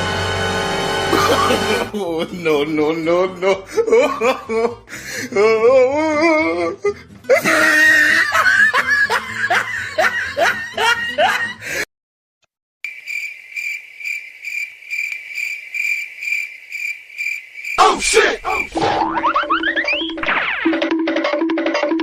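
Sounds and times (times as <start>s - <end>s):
comedy music: 1.0s - 11.8s, 18.5s - 22.0s
laughter: 1.1s - 4.8s, 7.3s - 11.8s
cricket chirp sound effect: 12.8s - 18.8s.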